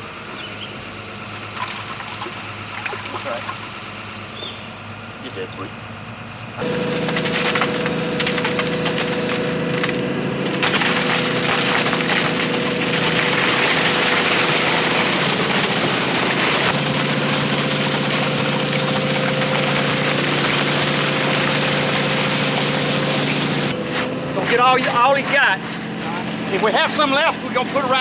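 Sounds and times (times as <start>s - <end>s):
diesel engine running: 5.9s - 28.0s
wet concrete pouring: 6.6s - 28.0s.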